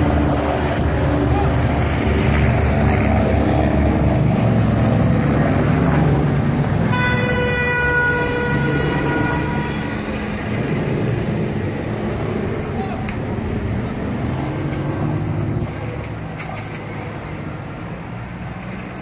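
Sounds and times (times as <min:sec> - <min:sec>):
road traffic engine hum: 0:00.0 - 0:19.0
vehicle horn: 0:06.8 - 0:10.4.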